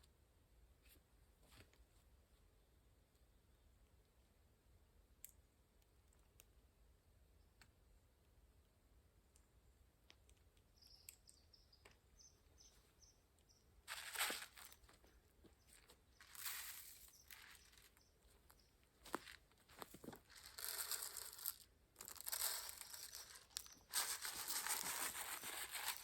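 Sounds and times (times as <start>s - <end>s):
rustling noise: 13.9s - 26.0s.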